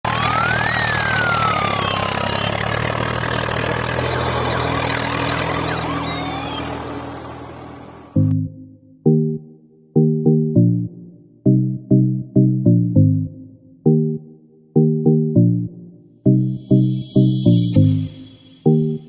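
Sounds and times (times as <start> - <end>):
engine running: 0.0 - 8.4
chirping and gliding whistles: 0.1 - 8.1, 16.5 - 19.0
short musical chord: 16.3 - 19.0.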